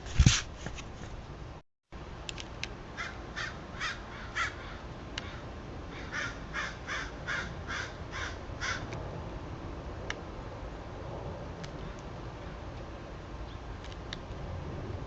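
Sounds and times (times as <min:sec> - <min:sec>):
crow cawing: 0:03.0 - 0:08.9.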